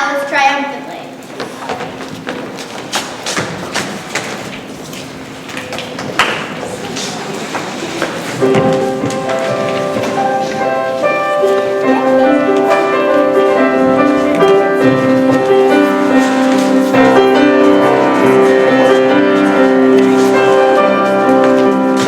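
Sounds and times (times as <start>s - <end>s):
piano music: 8.2s - 22.0s.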